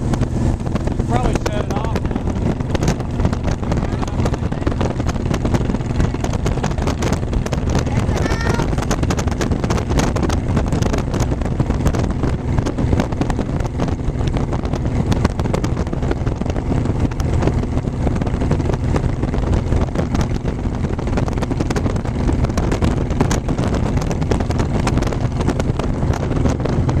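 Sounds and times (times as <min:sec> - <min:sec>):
motorcycle engine drone: 0:00.0 - 0:27.0
wind buffeting microphone: 0:00.0 - 0:27.0.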